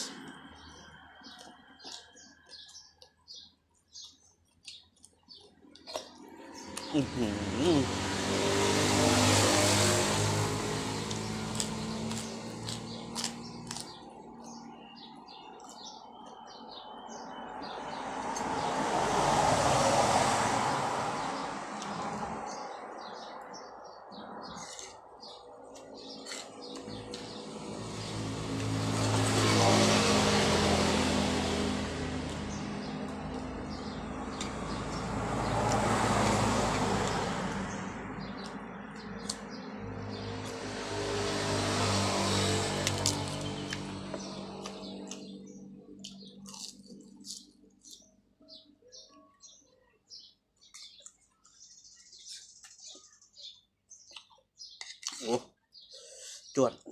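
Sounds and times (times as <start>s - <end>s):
small birds chirping: 0.0s - 19.2s, 21.2s - 56.9s
vehicle passing: 6.2s - 47.7s.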